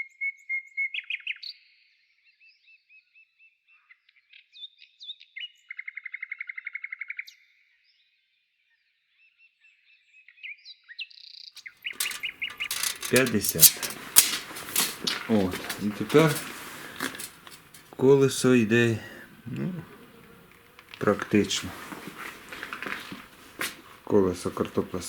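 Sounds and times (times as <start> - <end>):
sharp knocks and clatter: 12.0 - 18.0.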